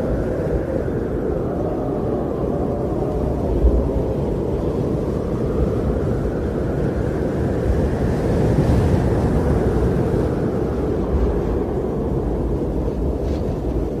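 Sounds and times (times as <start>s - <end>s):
wind blowing: 0.0s - 14.0s.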